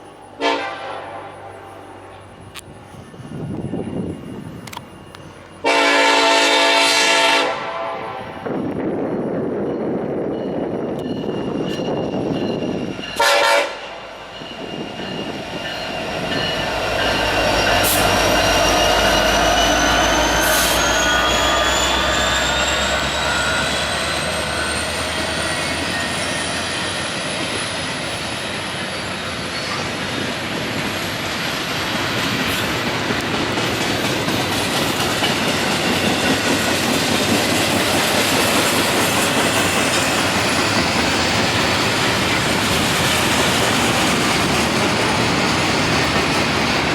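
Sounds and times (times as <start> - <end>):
locomotive rumble: 0.0 - 46.9
train cars rolling on rails: 0.0 - 46.9
train horn blast: 0.4 - 1.7, 5.6 - 8.5, 13.2 - 14.2.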